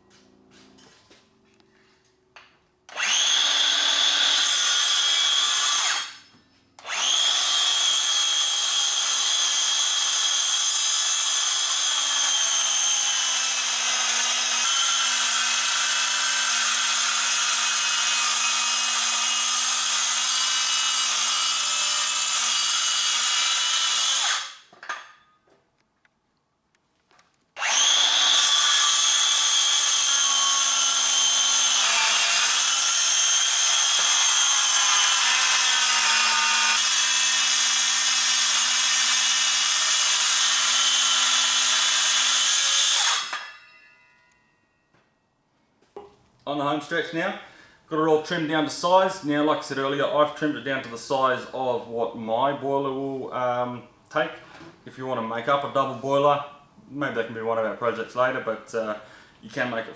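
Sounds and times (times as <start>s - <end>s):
power saw cutting board: 2.9s - 25.0s, 27.6s - 43.7s.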